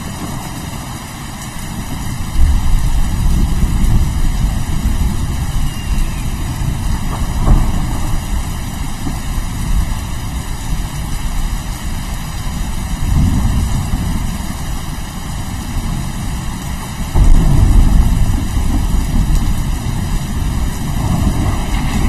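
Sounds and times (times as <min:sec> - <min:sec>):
heavy rain: 0:00.0 - 0:22.0
low rolling thunder: 0:01.6 - 0:22.0.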